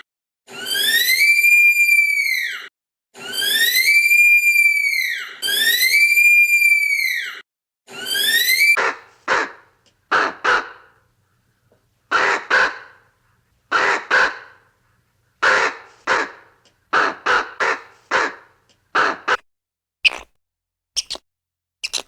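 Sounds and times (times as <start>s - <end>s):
bird harsh calls: 21.0s - 21.2s.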